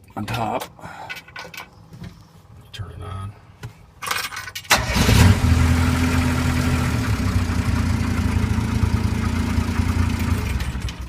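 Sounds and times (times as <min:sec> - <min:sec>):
tractor engine starting and idling: 0:04.6 - 0:11.0.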